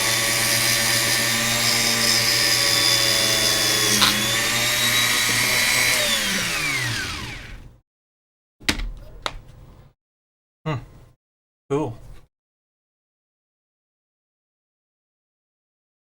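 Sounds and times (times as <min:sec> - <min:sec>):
electric power tool polishing: 0:00.0 - 0:07.6.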